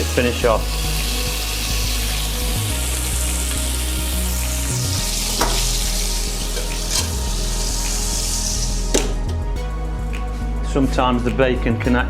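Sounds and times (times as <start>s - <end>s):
meat sizzling in a frying pan: 0.0s - 9.2s.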